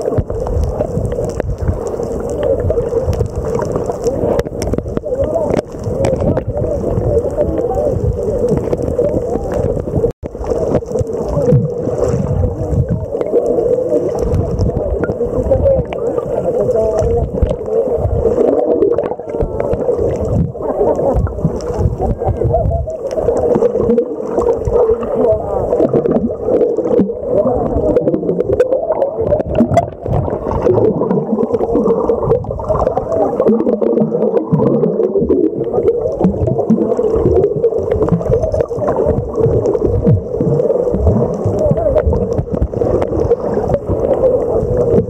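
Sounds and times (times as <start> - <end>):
sharp underwater clicks: 0.0 - 16.0
muffled rumble of water gurgling: 0.0 - 45.0
underwater bubbles and churning: 0.0 - 45.0.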